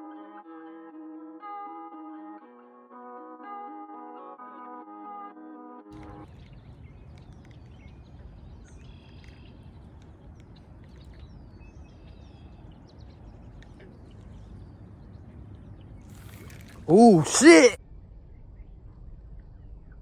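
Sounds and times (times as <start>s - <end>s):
birds chirping and calling: 6.0s - 16.9s
steady low rumble: 6.0s - 16.9s, 17.8s - 20.0s.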